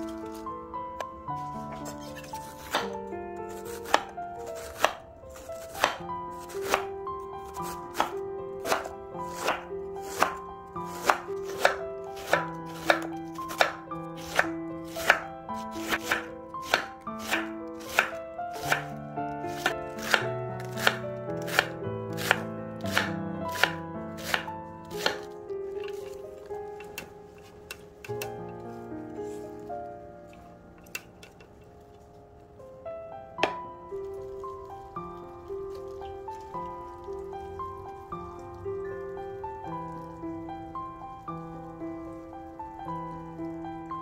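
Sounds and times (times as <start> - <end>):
gentle background music: 0.0 - 44.0
knife chopping on cutting board: 1.8 - 6.8, 7.4 - 18.9, 19.5 - 26.1.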